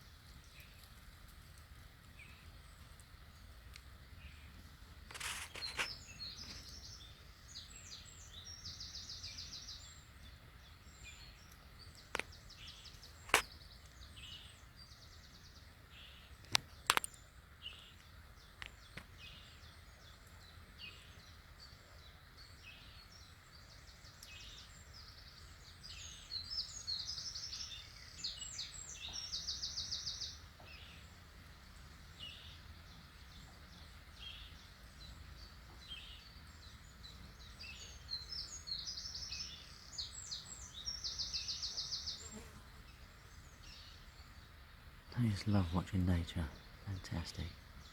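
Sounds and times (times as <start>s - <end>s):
songbirds singing and calling: 0.0s - 47.9s
sharp clicks: 16.4s - 17.1s.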